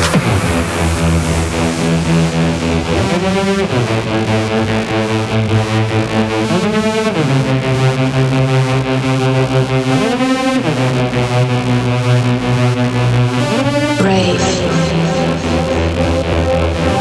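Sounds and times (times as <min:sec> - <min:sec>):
low bass note: 0:00.0 - 0:06.3
sliding synthesizer chord: 0:00.0 - 0:10.1.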